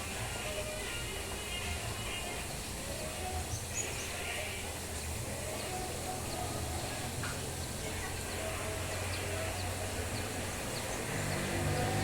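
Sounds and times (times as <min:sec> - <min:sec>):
background hiss: 0:00.0 - 0:12.0
low engine hum: 0:04.7 - 0:12.0.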